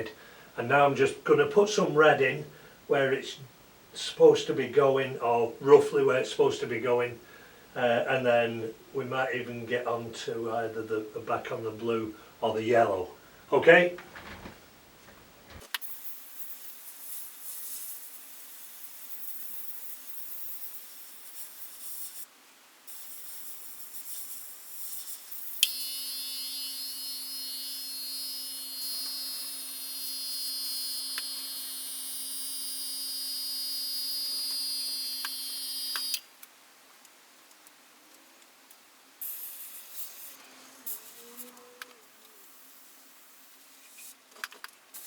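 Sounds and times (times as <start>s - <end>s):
steady hiss with hum and whine: 0.0s - 45.0s
airbrush air hiss: 15.8s - 22.3s, 22.9s - 36.2s.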